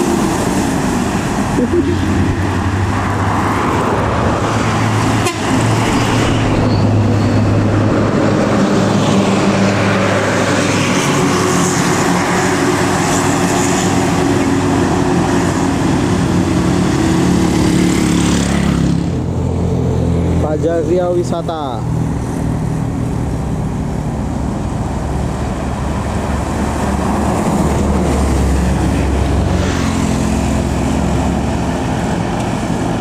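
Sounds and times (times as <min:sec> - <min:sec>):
heavy diesel vehicles passing: 0:00.0 - 0:33.0
road and tyre roar: 0:00.0 - 0:33.0.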